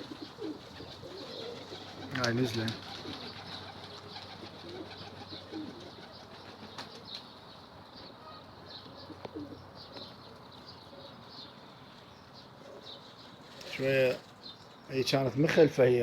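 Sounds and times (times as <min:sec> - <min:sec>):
pigeon wing flaps: 0:00.0 - 0:07.2
pigeons cooing and clicking: 0:00.0 - 0:07.3, 0:08.8 - 0:10.1.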